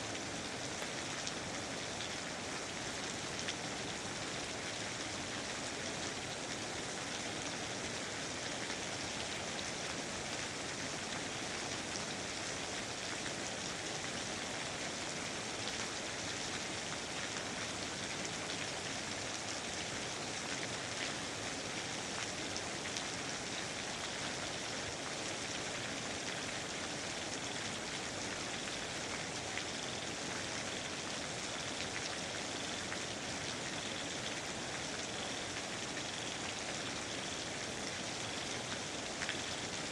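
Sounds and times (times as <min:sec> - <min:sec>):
rain pattering: 0:00.1 - 0:39.9.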